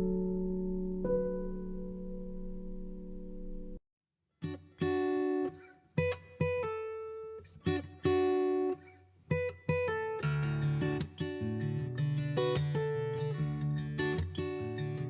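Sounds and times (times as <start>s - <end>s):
plucked guitar notes: 9.7s - 15.0s.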